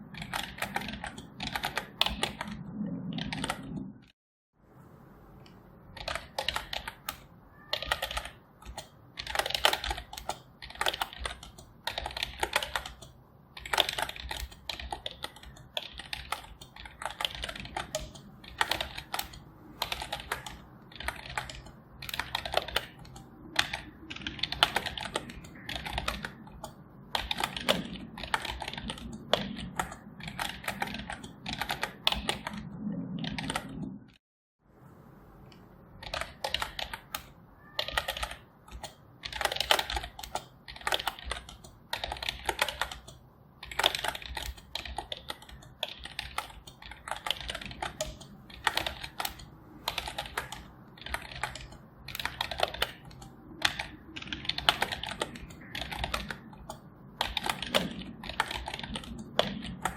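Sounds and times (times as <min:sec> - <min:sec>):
computer keyboard typing: 0:00.0 - 0:04.2, 0:05.4 - 0:34.2, 0:35.5 - 0:59.9.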